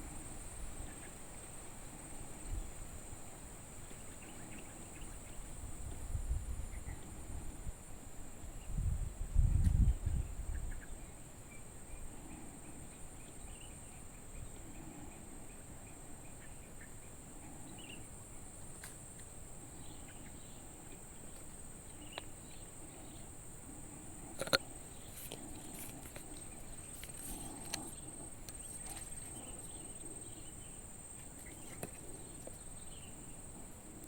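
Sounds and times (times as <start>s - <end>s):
insects buzzing: 0.0s - 34.0s
low rumble on microphone: 8.5s - 10.8s.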